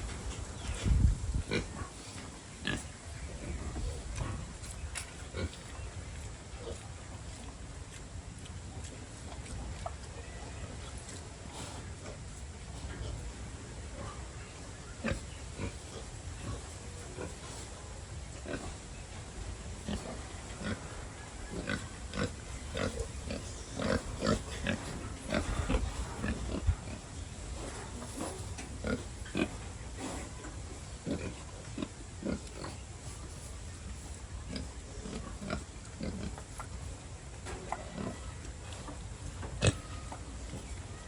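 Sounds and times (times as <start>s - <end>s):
pigs grunting: 0.8s - 5.9s, 19.7s - 37.0s, 37.6s - 41.0s.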